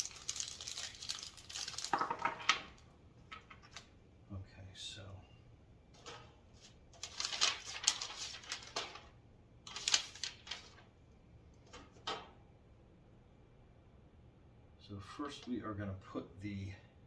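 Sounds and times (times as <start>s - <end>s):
rustling and scraping of packaging: 0.0s - 2.0s, 6.0s - 9.1s, 9.7s - 10.9s.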